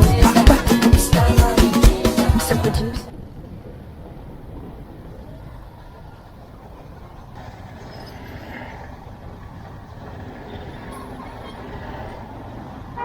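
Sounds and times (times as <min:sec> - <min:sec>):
motorbike engine and road rumble: 0:03.1 - 0:13.0.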